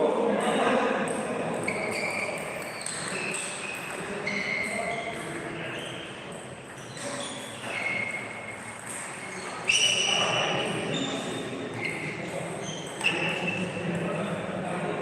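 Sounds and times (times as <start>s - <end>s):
murmur of voices: 0.0s - 15.0s
ping-pong balls knocking: 0.4s - 5.4s.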